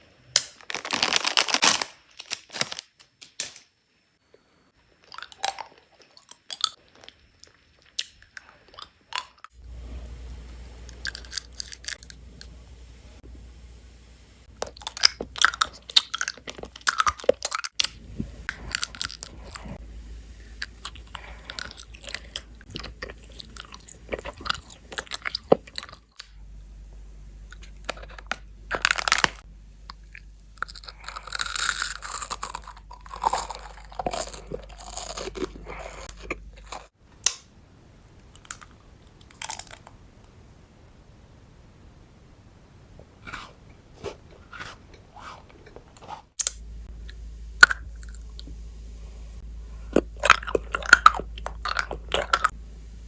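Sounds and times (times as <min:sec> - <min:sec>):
crunching and chewing candy: 0:00.4 - 0:03.0, 0:04.9 - 0:09.6, 0:10.8 - 0:12.2, 0:14.5 - 0:19.8, 0:20.4 - 0:26.4, 0:27.5 - 0:37.0, 0:38.4 - 0:40.0, 0:43.2 - 0:48.5, 0:49.8 - 0:52.6.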